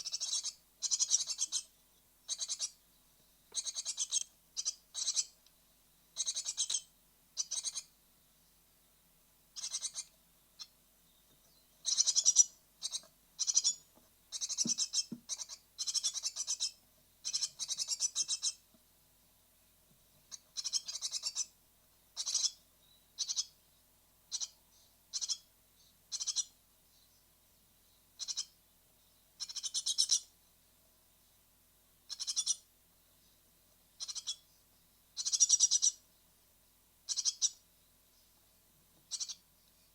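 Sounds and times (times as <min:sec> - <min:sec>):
nestlings begging calls: 0:00.0 - 0:01.7, 0:02.3 - 0:02.8, 0:03.5 - 0:05.4, 0:06.2 - 0:07.9, 0:09.6 - 0:10.7, 0:11.8 - 0:18.6, 0:20.3 - 0:21.5, 0:22.2 - 0:22.6, 0:23.2 - 0:23.6, 0:24.3 - 0:25.5, 0:26.1 - 0:26.6, 0:28.2 - 0:28.6, 0:29.4 - 0:30.3, 0:32.1 - 0:32.7, 0:34.0 - 0:34.4, 0:35.2 - 0:36.0, 0:37.1 - 0:37.6, 0:39.1 - 0:39.4.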